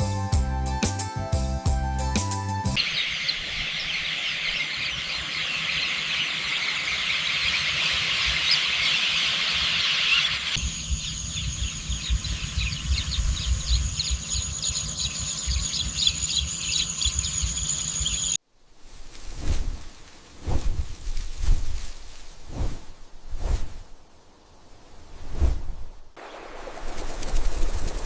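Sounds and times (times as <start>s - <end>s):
birds chirping: 2.8s - 18.4s.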